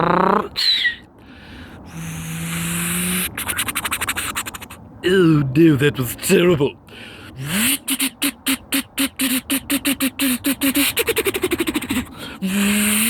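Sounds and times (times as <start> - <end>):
person imitating a car engine: 0.0 - 1.0, 1.8 - 13.0.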